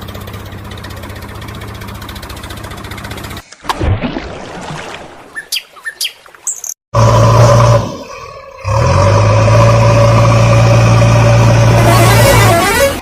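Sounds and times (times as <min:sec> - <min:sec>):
heavy vehicle engine running: 0:00.0 - 0:03.4, 0:07.0 - 0:07.9, 0:08.6 - 0:13.0.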